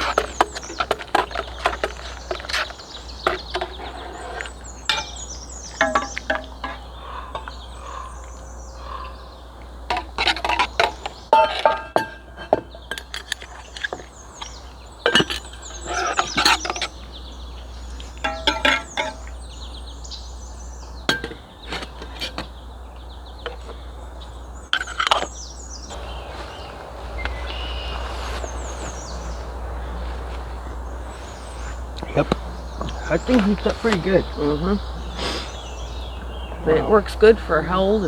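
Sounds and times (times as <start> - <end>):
sharp clinks and knocks: 0.0 - 7.6, 9.9 - 17.0, 18.0 - 19.4
birds chirping: 0.0 - 38.0
steady rushing hiss: 25.8 - 38.0.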